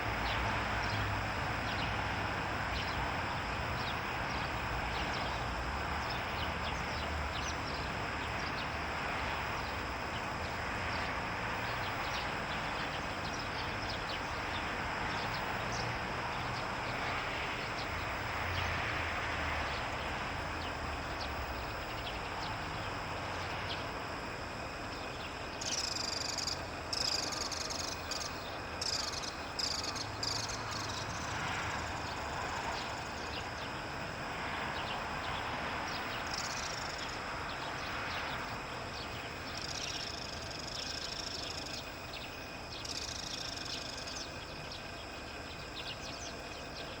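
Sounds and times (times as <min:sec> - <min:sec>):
outdoor background hiss: 0:00.0 - 0:47.0.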